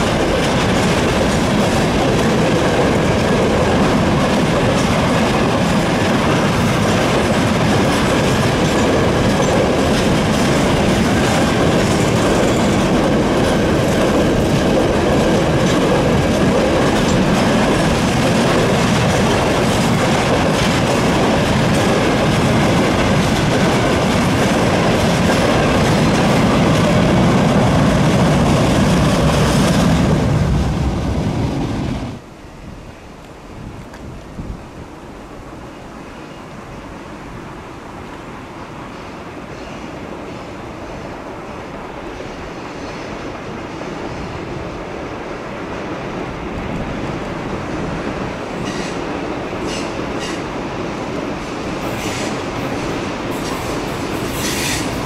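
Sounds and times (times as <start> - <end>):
wheels clacking over rail joints: 0.0 - 30.5
freight train rumbling past: 0.0 - 55.0.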